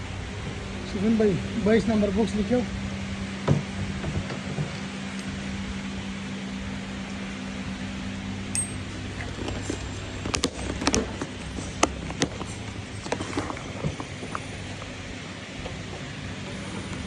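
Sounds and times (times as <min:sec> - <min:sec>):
steady low hum: 0:00.0 - 0:17.0
sharp clicks and knocks: 0:08.5 - 0:15.0.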